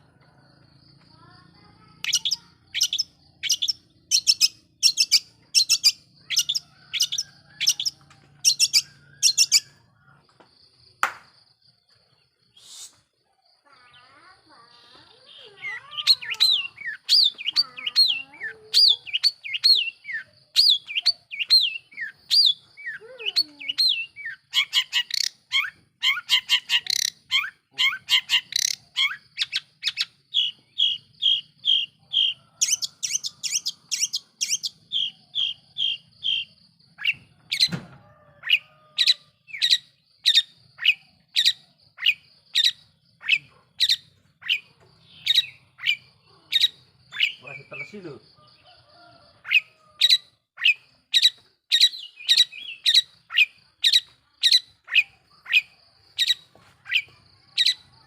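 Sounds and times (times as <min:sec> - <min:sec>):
shrike singing: 0:38.6 - 0:49.7.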